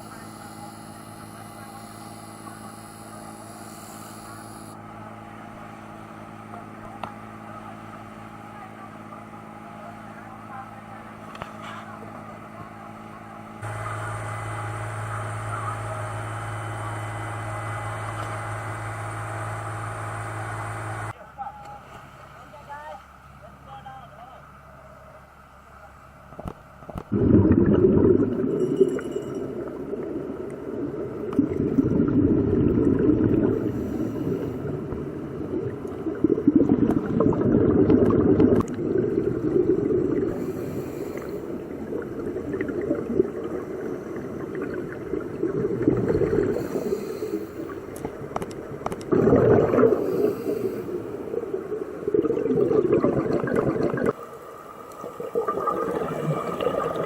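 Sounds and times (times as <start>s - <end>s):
underwater regulator bubbles: 26.9s - 54.2s, 54.8s - 57.0s.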